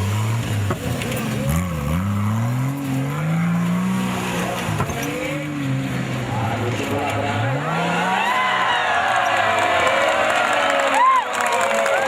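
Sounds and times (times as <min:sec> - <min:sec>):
engine revving: 0:00.0 - 0:08.7.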